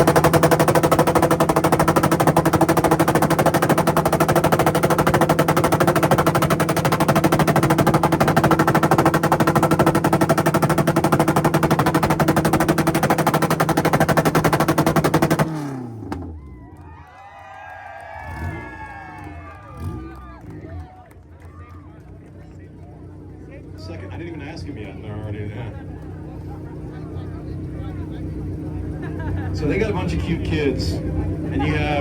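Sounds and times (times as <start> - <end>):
car engine rev limiter popping: 0.0 - 16.5.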